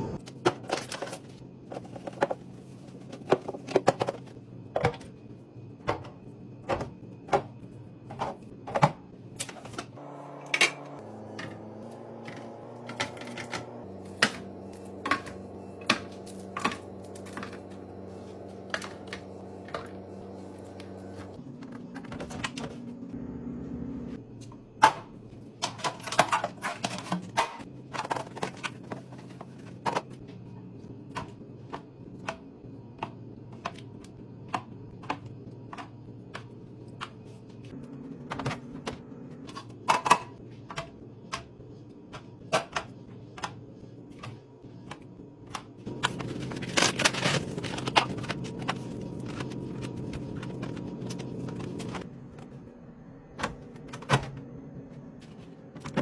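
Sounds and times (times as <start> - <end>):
food containers clicking and knocking: 0.3 - 5.2, 38.2 - 41.5.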